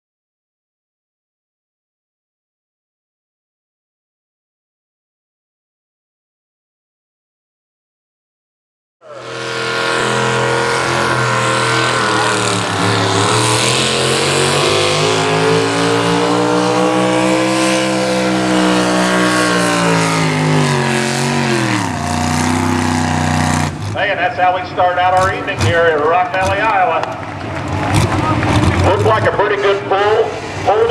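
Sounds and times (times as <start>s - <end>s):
truck engine at full throttle: 9.0s - 30.9s.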